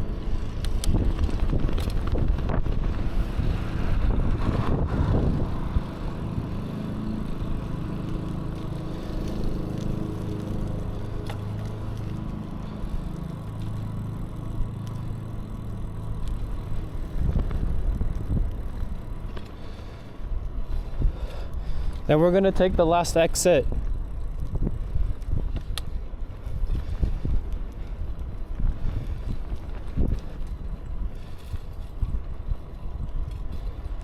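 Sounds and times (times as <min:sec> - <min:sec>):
wind rushing over microphone: 0:00.0 - 0:09.6, 0:16.4 - 0:34.0
bicycle road rumble: 0:00.0 - 0:34.0.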